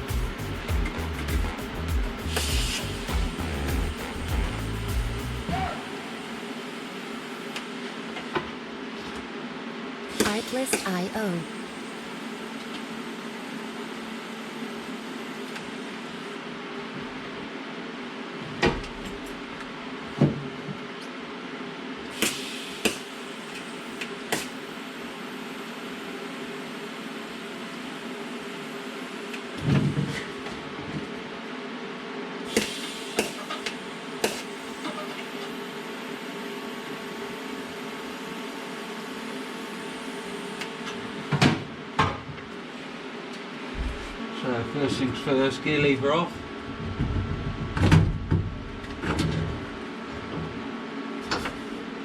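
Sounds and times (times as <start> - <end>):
steady hum: 0.0 - 8.9, 10.1 - 13.6
mechanical hum: 0.0 - 52.0.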